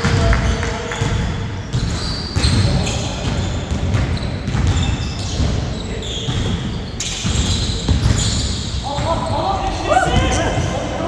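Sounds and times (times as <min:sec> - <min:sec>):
basketball bouncing: 0:00.0 - 0:11.0
sneakers squeaking on court: 0:00.1 - 0:11.0.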